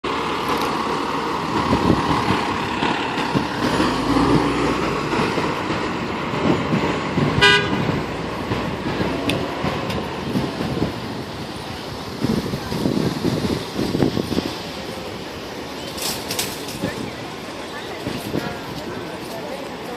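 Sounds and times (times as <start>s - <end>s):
fire engine running: 0.0s - 19.9s
street traffic noise: 0.0s - 19.9s
short horn toot: 7.4s - 7.8s.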